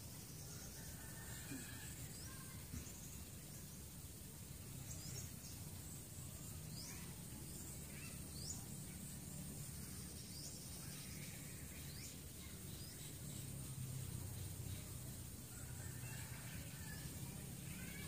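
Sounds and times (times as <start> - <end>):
low outdoor hum: 0.0 - 18.0
bird chirps: 4.6 - 15.2.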